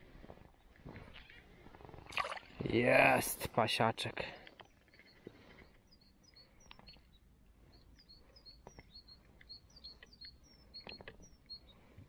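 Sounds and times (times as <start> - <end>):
small bird chirping: 4.4 - 12.0.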